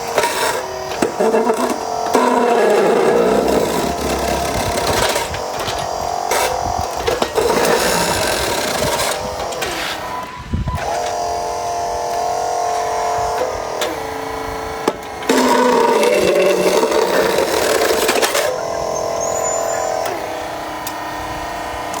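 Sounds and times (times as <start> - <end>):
electric motors whining: 0.0 - 22.0.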